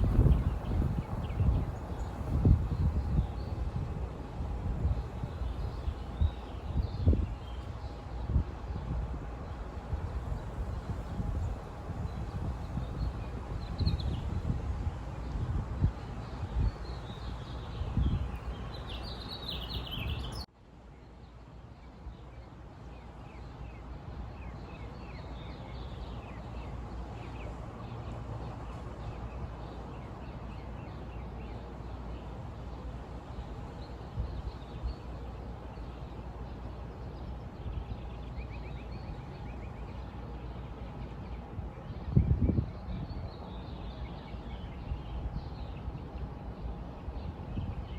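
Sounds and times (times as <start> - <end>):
birds chirping: 16.3 - 20.5.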